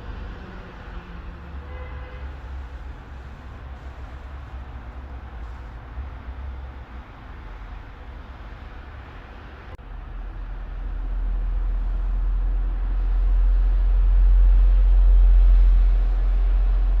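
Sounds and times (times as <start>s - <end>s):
low rumble: 9.8s - 17.0s.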